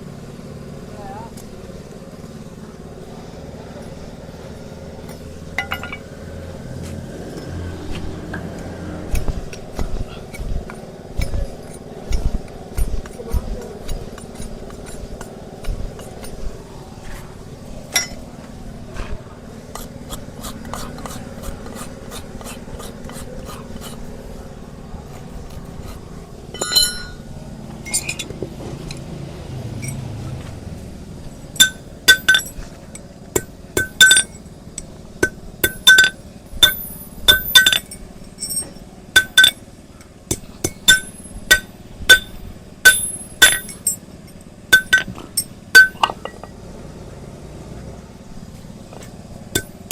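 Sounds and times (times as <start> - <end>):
ringing metallic clinks: 5.0 - 6.2, 17.9 - 18.3, 26.5 - 29.0, 29.7 - 30.3, 31.3 - 46.6, 49.5 - 49.9.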